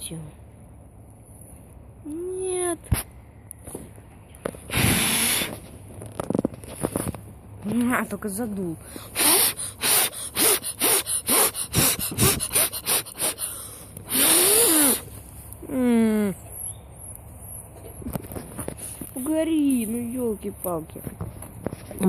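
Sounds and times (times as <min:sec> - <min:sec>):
breath blown into microphone: 0:08.9 - 0:15.1.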